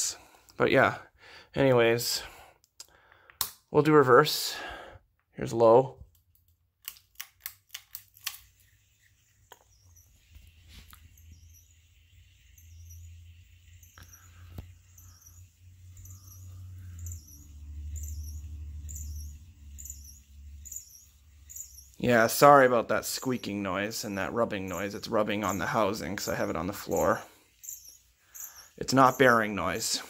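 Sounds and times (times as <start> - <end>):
ceiling fan motor humming: 8.2 - 30.0
fan rubbing sound: 8.3 - 30.0
high squeak: 9.2 - 30.0.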